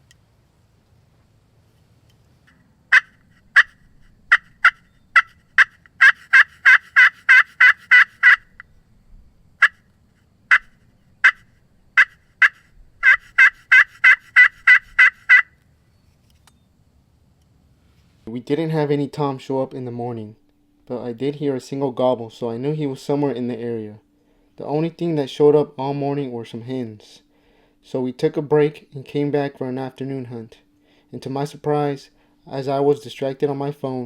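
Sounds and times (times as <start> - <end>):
turkey yelping: 2.9 - 8.6, 10.5 - 15.6.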